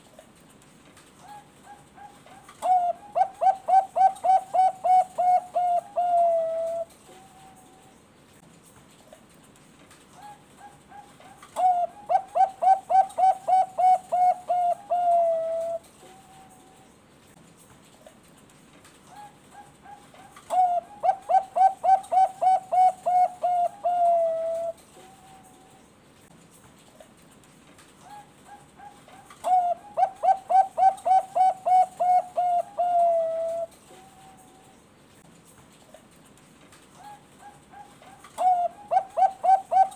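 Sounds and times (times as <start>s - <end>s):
dove cooing: 1.2s - 7.9s, 10.2s - 16.8s, 19.1s - 25.8s, 28.0s - 34.8s, 37.0s - 39.9s.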